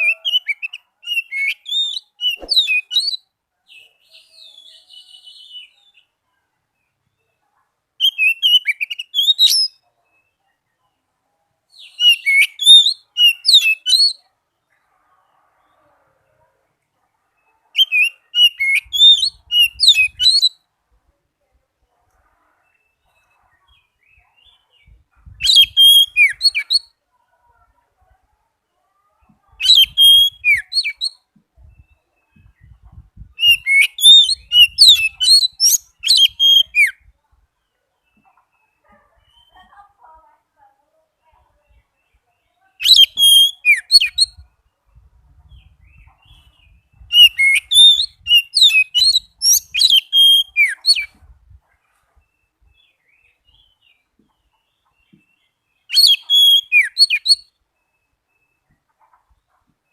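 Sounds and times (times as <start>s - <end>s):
bird singing whistled trills: 0.0s - 3.3s, 8.0s - 9.8s, 11.8s - 14.2s, 17.8s - 20.6s, 25.3s - 27.0s, 29.6s - 37.1s, 42.8s - 44.4s, 45.6s - 51.1s, 55.9s - 58.6s.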